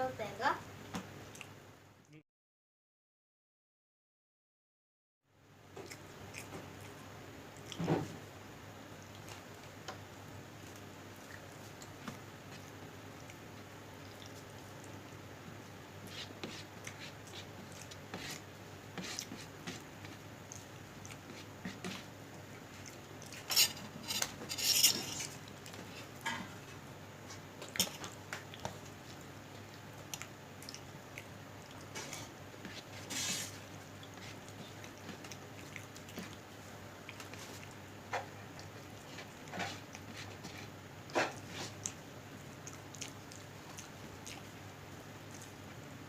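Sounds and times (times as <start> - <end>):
cutlery clinking and scraping on plate: 23.4 - 25.3.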